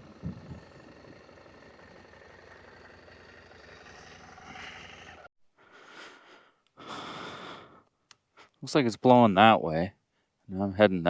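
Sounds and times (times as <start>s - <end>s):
faint motorcycle engine: 0.0s - 5.3s.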